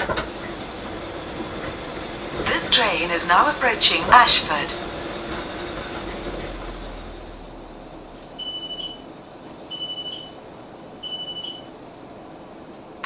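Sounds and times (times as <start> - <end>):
electric train rumble: 0.0 - 13.0
high electronic door beep: 8.4 - 9.0, 9.7 - 10.4, 11.0 - 11.7.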